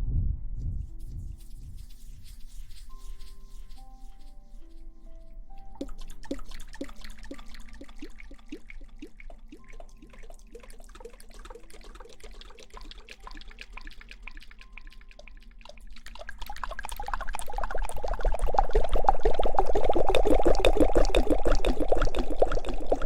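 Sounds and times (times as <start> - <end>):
water dripping: 1.2 - 23.0
water running and splashing: 5.6 - 23.0.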